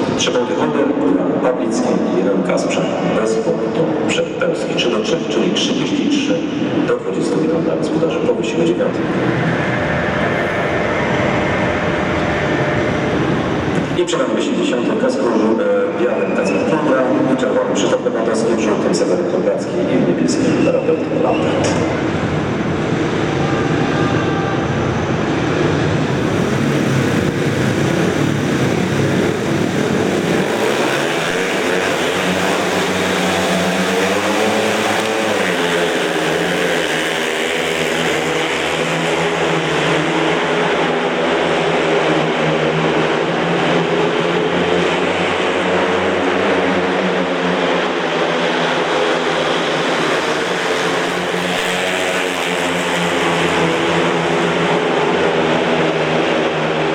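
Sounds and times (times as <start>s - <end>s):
motorcycle engines racing: 6.5s - 14.1s, 21.3s - 56.9s.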